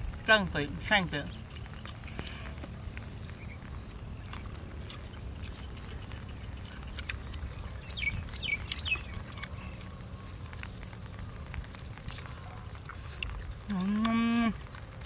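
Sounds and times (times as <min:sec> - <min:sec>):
steady low rumble: 0:00.0 - 0:15.0
bird chirping: 0:03.2 - 0:11.5.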